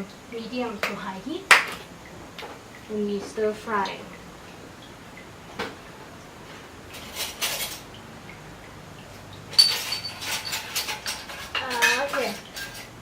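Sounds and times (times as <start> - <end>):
metal utensils clinking and scraping: 6.9 - 7.9, 9.5 - 13.0
sharp ringing metallic clink: 9.5 - 10.7.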